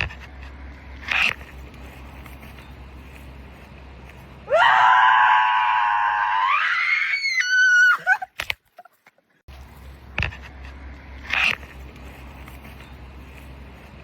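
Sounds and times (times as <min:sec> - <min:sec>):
woman screaming: 0:04.5 - 0:08.3.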